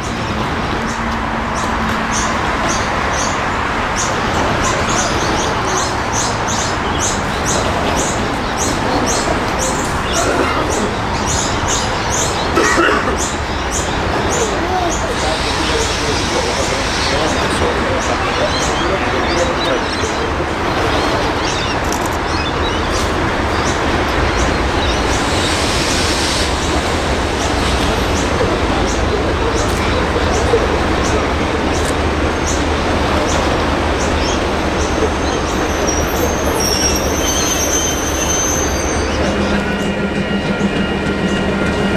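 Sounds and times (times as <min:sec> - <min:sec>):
train rumbling on tracks: 0:00.0 - 0:41.9.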